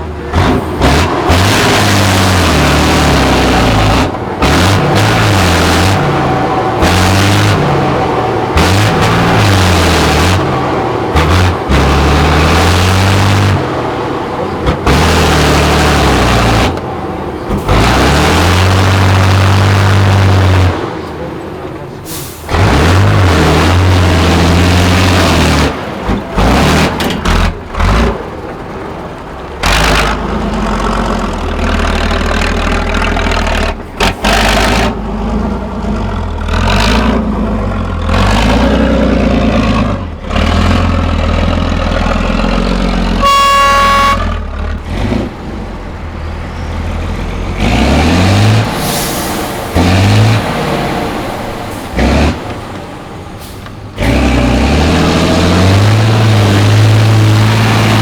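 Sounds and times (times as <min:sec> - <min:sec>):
diesel truck engine revving: 0:00.0 - 0:58.0
short horn toot: 0:43.2 - 0:44.5.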